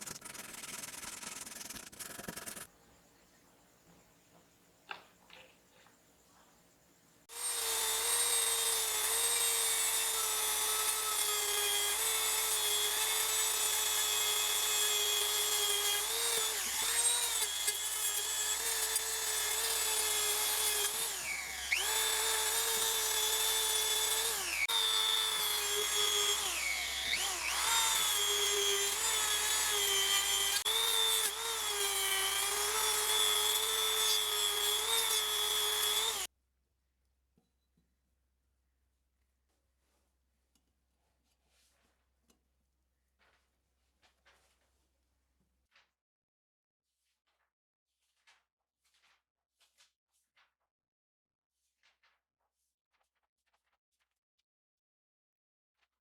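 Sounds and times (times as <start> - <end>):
rotary tool motor whining: 7.3 - 36.3.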